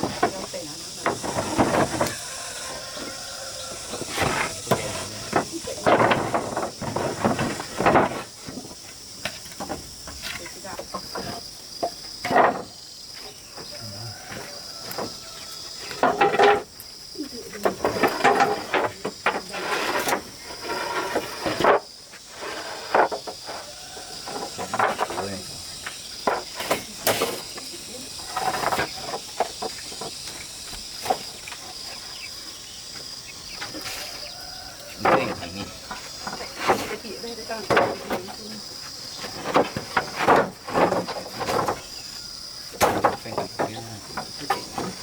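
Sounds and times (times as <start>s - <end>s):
insect drone: 0.0s - 45.0s
knocks and clatter of tools: 4.2s - 8.6s, 9.2s - 12.8s, 15.8s - 16.8s, 24.2s - 25.4s, 42.8s - 45.0s.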